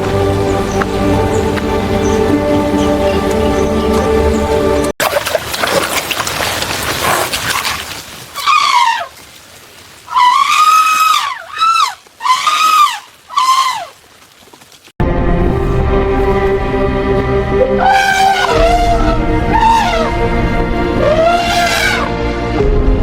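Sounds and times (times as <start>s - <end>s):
steady rain-like hiss: 7.8s - 10.8s
baby elephant squealing: 8.4s - 9.1s, 10.1s - 14.0s, 17.8s - 20.1s, 21.0s - 22.1s.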